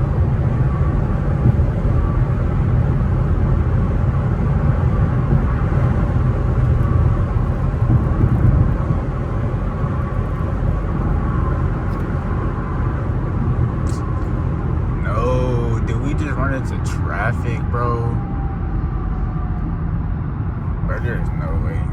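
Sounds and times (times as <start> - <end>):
car interior road rumble: 0.0 - 21.9.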